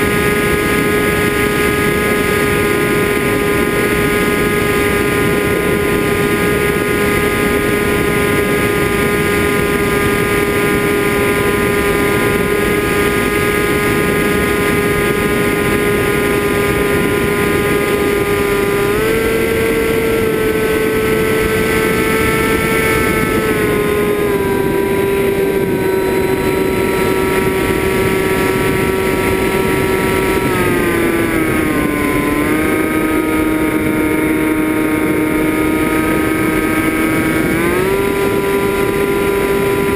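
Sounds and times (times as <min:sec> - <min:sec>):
drone motors whining: 0:00.0 - 0:39.9
rushing noise: 0:00.0 - 0:39.9.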